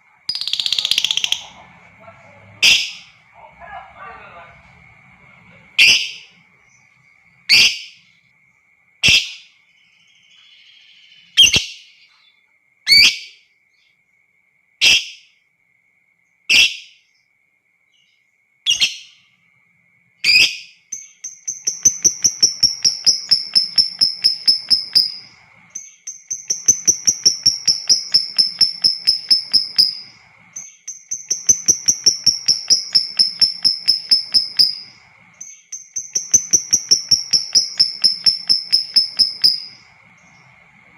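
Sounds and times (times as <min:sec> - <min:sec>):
lovebird screeching: 0:00.3 - 0:01.7, 0:02.6 - 0:03.2, 0:05.8 - 0:06.4, 0:21.8 - 0:25.5, 0:26.5 - 0:30.4, 0:31.3 - 0:35.1, 0:36.0 - 0:40.0
lovebird rapid chattering: 0:00.3 - 0:02.0, 0:20.3 - 0:40.8.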